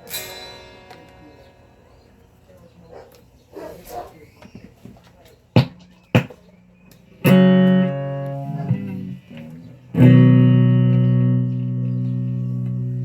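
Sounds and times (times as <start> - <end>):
guitar chords strummed: 0.0 - 2.6, 7.2 - 13.0
muted guitar clicks: 5.6 - 13.0.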